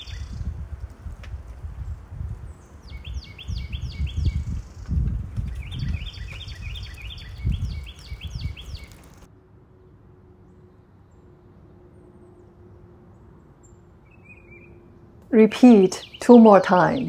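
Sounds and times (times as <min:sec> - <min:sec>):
small bird chirping: 0:00.0 - 0:00.5, 0:01.8 - 0:09.3
wind rumbling on microphone: 0:00.0 - 0:09.3.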